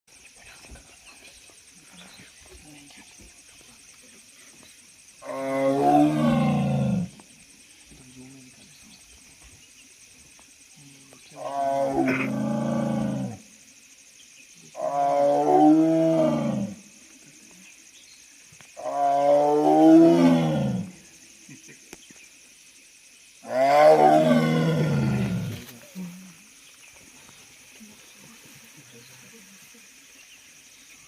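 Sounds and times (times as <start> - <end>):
tiger roaring: 11.4 - 13.4, 23.5 - 25.6.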